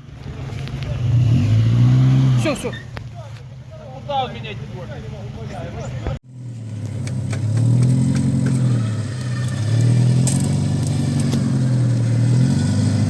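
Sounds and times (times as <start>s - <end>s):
vehicle engine revving: 0.5s - 3.0s, 6.2s - 13.0s.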